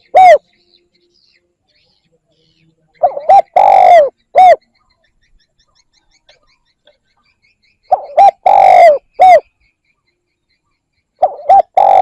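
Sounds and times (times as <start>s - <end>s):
dove cooing: 0.0s - 0.5s, 3.0s - 4.7s, 7.9s - 9.5s, 11.2s - 12.0s.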